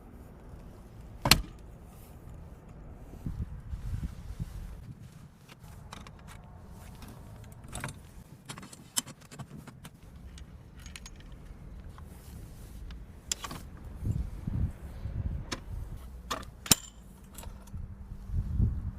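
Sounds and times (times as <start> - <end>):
faint low rumble: 0.0 - 8.3, 10.0 - 16.3
light metallic clicks and clinks: 7.4 - 12.1, 16.3 - 17.8.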